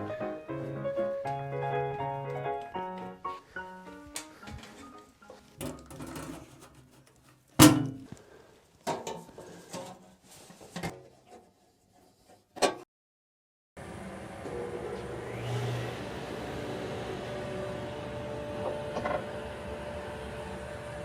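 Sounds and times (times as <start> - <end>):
heavy machine parts clunking: 5.6 - 8.2.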